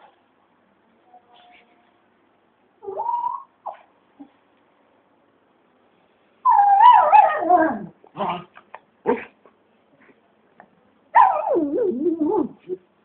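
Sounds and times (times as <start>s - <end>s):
dog crying: 2.8s - 3.9s, 6.5s - 7.9s, 11.2s - 12.7s
dog yipping: 2.8s - 4.3s, 6.5s - 7.9s, 11.2s - 12.6s.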